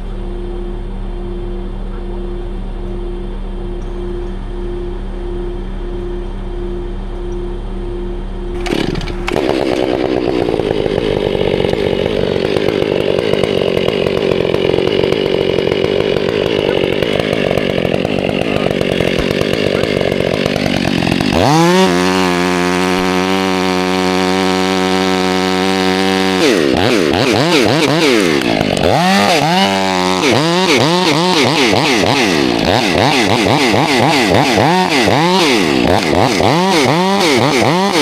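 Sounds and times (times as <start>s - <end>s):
chainsaw running: 8.5s - 38.0s.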